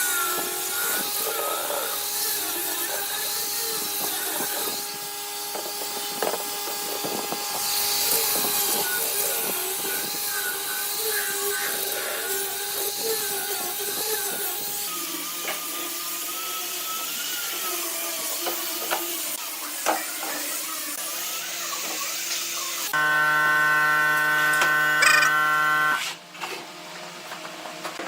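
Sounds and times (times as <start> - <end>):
machine humming: 23.0 - 26.1.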